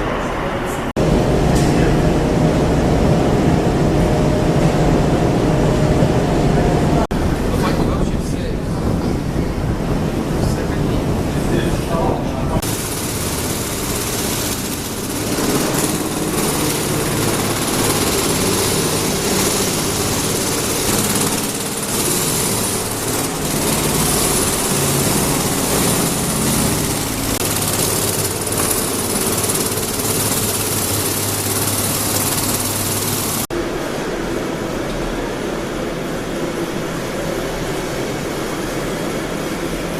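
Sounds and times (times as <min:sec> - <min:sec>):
engine drone: 0:00.0 - 0:39.9
high whine: 0:00.0 - 0:39.9
mechanical clatter: 0:12.6 - 0:33.5.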